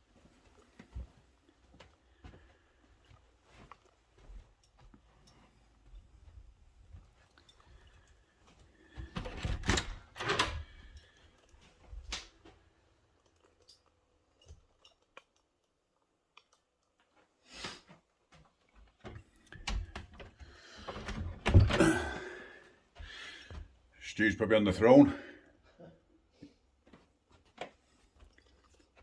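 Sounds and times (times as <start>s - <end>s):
knocks and clunks in a room: 0.0s - 14.8s, 17.9s - 24.0s.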